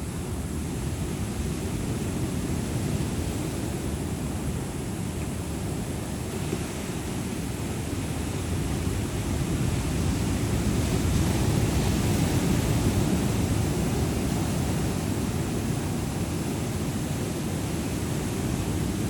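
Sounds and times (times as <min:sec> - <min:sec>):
ocean surf rumble: 0:00.0 - 0:19.0.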